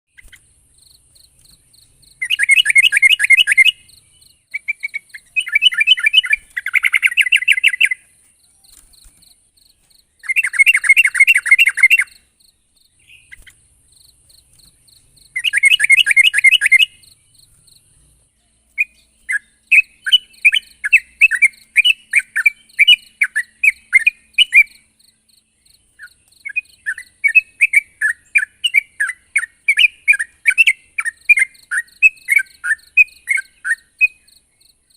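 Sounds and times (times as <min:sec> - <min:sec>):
bird short chirping notes: 0:00.1 - 0:24.9.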